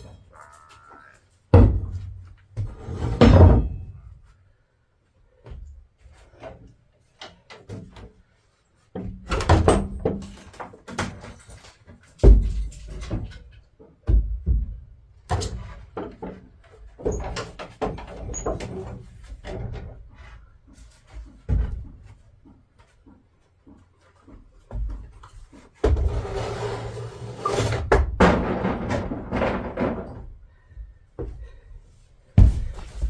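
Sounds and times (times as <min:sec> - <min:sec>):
wooden boards knocking and thudding: 0:01.6 - 0:03.9, 0:14.0 - 0:14.9, 0:27.8 - 0:30.4, 0:32.4 - 0:33.0.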